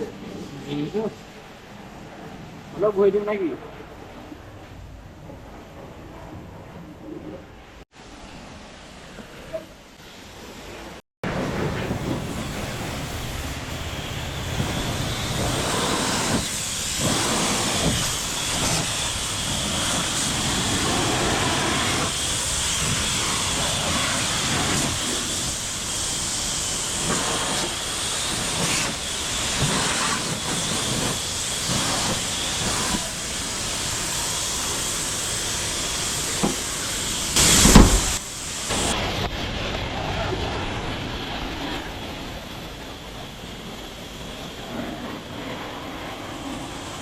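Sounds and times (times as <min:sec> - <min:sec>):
pressure washer spraying water: 0:11.6 - 0:39.0.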